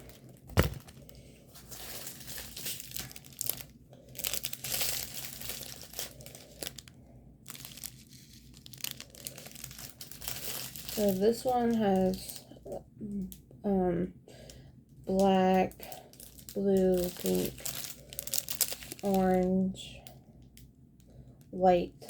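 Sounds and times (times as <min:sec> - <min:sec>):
packaging rustling: 0:00.0 - 0:06.9, 0:07.5 - 0:12.2, 0:16.1 - 0:19.4.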